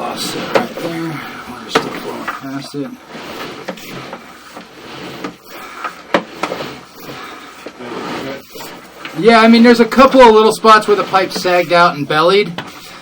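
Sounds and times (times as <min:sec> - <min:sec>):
cable rubbing and scraping: 0:00.0 - 0:13.0.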